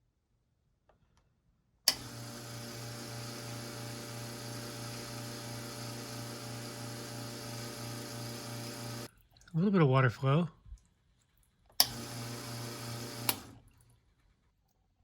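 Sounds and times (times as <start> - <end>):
espresso machine pump humming: 1.9 - 9.1, 11.8 - 13.6.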